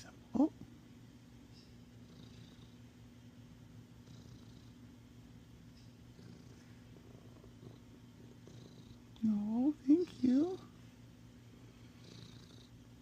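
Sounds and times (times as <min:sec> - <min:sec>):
cat purring: 0:01.9 - 0:05.1, 0:05.9 - 0:13.0.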